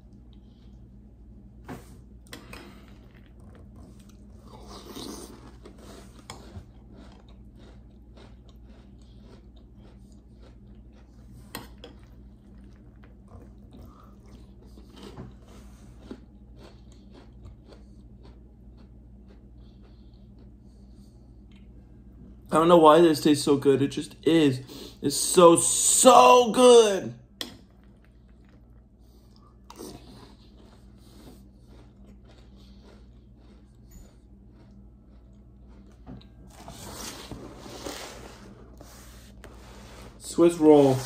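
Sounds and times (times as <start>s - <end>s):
steady low hum: 0.0s - 41.0s
chewing crunchy cereal: 2.3s - 21.8s, 27.6s - 37.9s.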